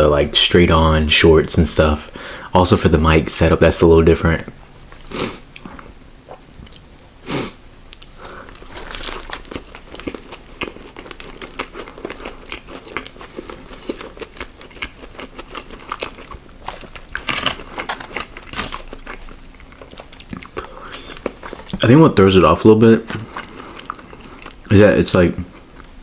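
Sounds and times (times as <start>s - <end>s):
person chewing food: 7.9s - 21.8s, 23.0s - 24.8s, 25.5s - 26.0s
loud crunchy bites: 8.5s - 21.6s.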